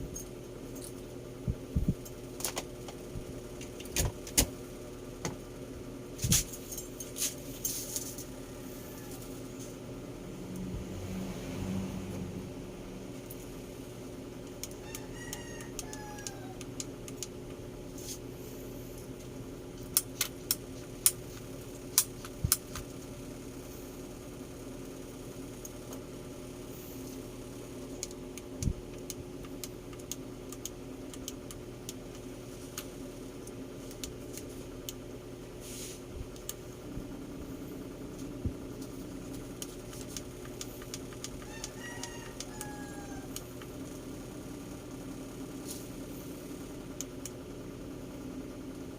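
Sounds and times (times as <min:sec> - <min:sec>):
low machine hum: 0:00.0 - 0:48.9
sharp clicks: 0:28.0 - 0:35.0.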